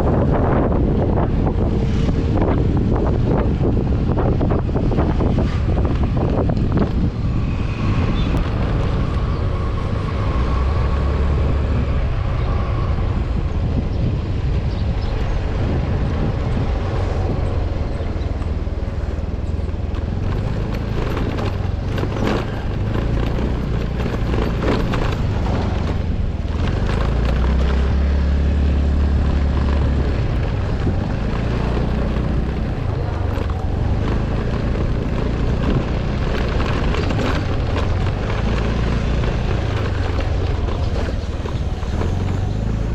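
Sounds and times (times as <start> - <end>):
vehicle engine running: 0.0 - 42.9
wind noise on microphone: 0.0 - 42.9
knocks and rattles: 19.7 - 28.0, 29.2 - 42.9.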